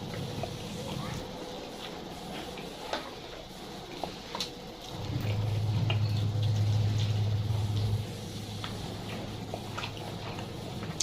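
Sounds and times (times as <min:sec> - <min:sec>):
low hum: 0:04.9 - 0:11.0.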